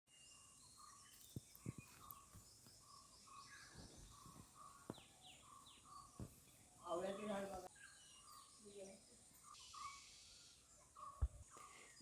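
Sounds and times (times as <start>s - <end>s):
low outdoor background: 0.1s - 12.0s.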